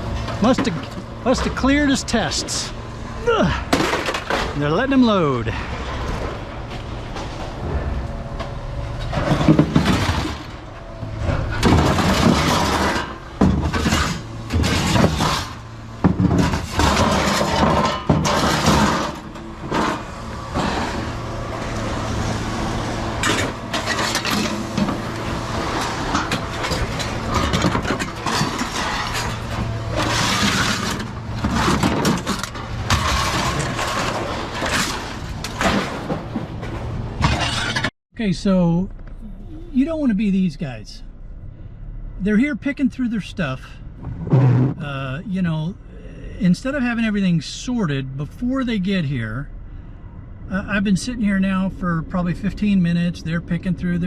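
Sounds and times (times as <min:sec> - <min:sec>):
scrap metal clattering and crashing: 0:00.0 - 0:04.8, 0:05.5 - 0:37.9.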